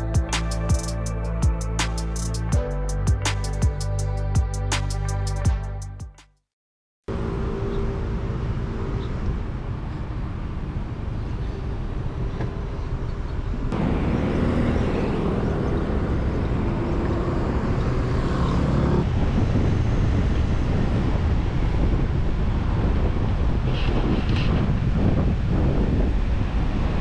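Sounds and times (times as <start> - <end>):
road and wind noise: 7.1 - 27.0
vehicle engine drone: 7.1 - 27.0.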